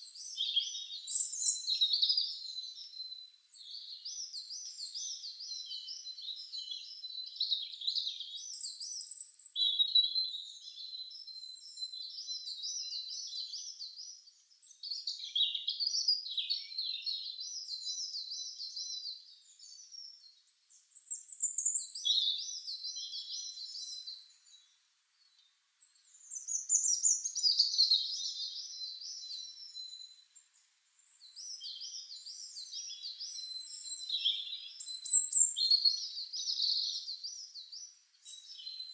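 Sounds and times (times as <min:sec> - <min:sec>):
songbird warbling trills: 0:31.2 - 0:37.5.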